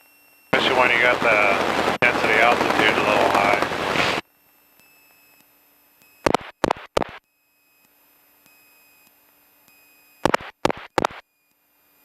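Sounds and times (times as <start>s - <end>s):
faint intercom hiss: 0.6s - 4.2s
radio blips: 0.6s - 4.2s, 6.3s - 7.2s, 10.3s - 11.2s.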